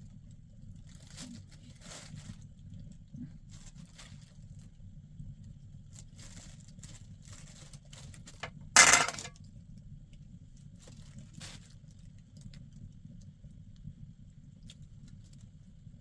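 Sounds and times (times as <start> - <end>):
loud clatter: 8.8 - 9.3.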